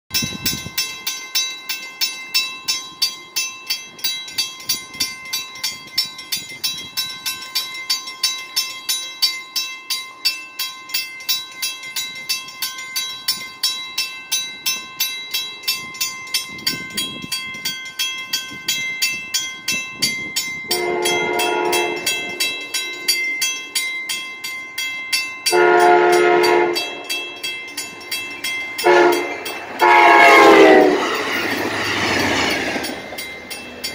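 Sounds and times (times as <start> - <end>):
crossing bell ringing: 0.1 - 33.9
locomotive horn blasts: 20.7 - 22.5, 25.5 - 27.0, 28.8 - 31.1.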